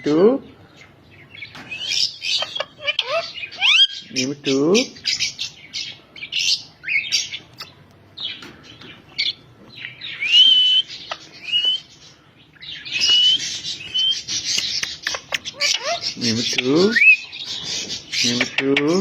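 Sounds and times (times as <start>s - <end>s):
parakeet chirps and squawks: 1.4s - 8.4s, 9.2s - 19.0s
parakeet rising whistles: 10.2s - 11.9s, 13.0s - 14.2s.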